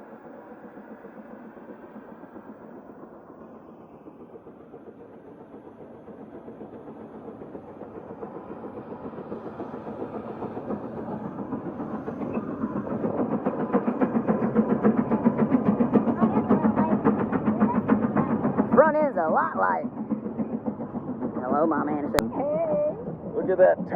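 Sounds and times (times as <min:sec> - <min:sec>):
steam engine exhaust chuffing: 0:00.0 - 0:23.9.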